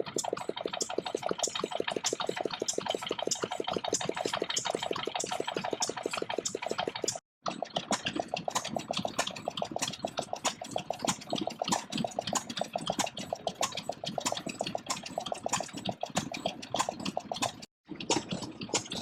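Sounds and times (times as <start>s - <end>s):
stationary engine exhaust beats: 0.0s - 7.2s, 7.8s - 19.0s.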